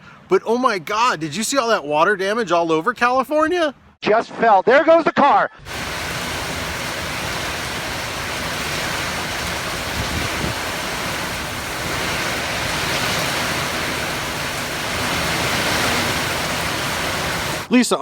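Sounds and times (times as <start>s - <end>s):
heavy rain: 5.7s - 17.7s
running water: 5.7s - 17.7s.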